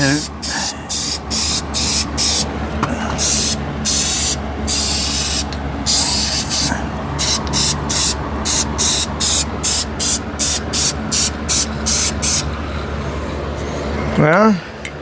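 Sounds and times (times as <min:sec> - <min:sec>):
steady low hum: 0:00.0 - 0:15.0
aerosol spray hissing: 0:00.2 - 0:02.5, 0:03.2 - 0:12.4.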